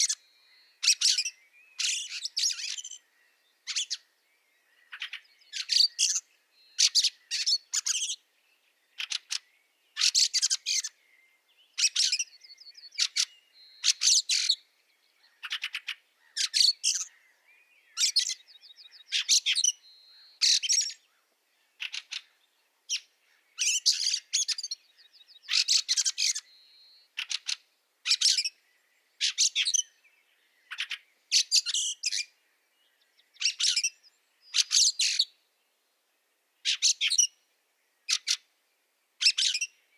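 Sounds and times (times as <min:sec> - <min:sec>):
birds rasping chatter calls: 0:00.0 - 0:00.2, 0:00.8 - 0:04.1, 0:04.8 - 0:08.2, 0:09.0 - 0:11.0, 0:11.8 - 0:14.6, 0:15.2 - 0:17.3, 0:17.9 - 0:21.2, 0:21.8 - 0:28.6, 0:29.2 - 0:30.0, 0:30.6 - 0:32.4, 0:33.3 - 0:35.4, 0:36.6 - 0:37.4, 0:38.1 - 0:38.5, 0:39.2 - 0:39.8.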